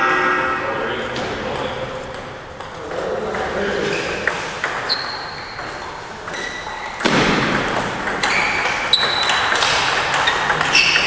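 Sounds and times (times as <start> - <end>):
table tennis ball hits: 4.1 - 11.0.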